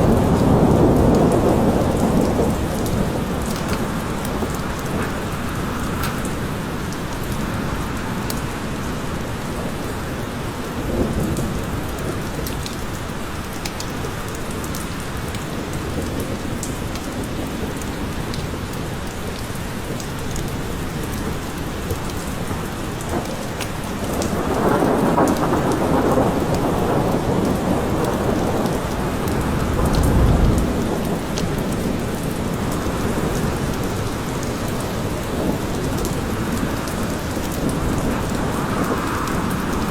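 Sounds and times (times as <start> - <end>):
thunder rumbling: 0.0 - 8.2, 19.8 - 39.9
steady rain in a forest: 0.0 - 39.9.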